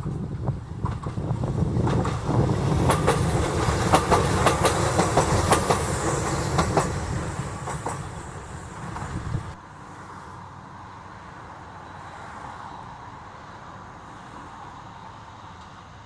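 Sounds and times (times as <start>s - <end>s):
train wheels clacking: 0.0s - 9.6s
train rumble: 0.0s - 10.1s.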